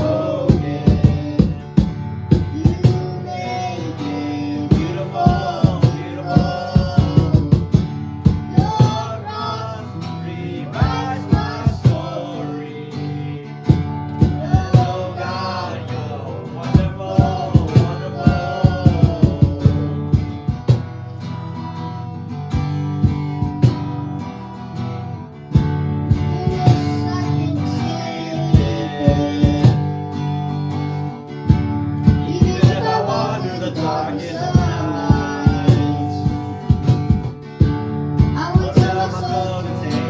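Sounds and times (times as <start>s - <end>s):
percussive beat: 0.0s - 3.6s, 4.7s - 9.3s, 10.8s - 12.2s, 13.7s - 15.5s, 16.6s - 21.4s, 22.5s - 24.2s, 25.5s - 27.3s, 28.4s - 30.2s, 31.5s - 40.0s
person singing: 0.0s - 20.3s, 26.2s - 30.0s, 32.0s - 37.2s, 38.4s - 40.0s
guitar: 0.0s - 40.0s.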